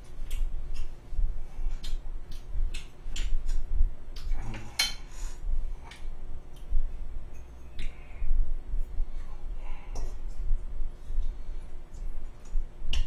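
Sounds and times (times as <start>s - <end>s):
chewing and lip smacking: 0.1s - 4.4s.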